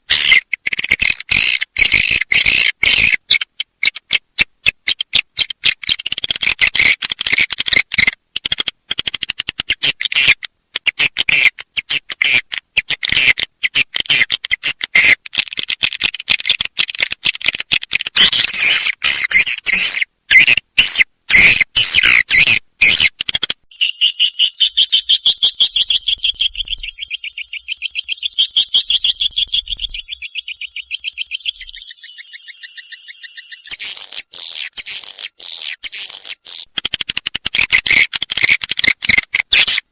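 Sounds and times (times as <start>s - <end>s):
high twittering bird chatter: 0.1s - 8.6s, 16.4s - 39.9s
rapid pulsed clicking trill: 24.0s - 34.7s.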